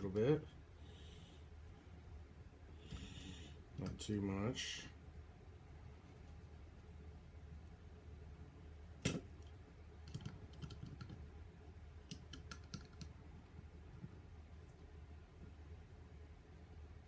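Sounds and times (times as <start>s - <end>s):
small parts clicking and tapping: 9.0s - 11.2s, 12.0s - 13.2s.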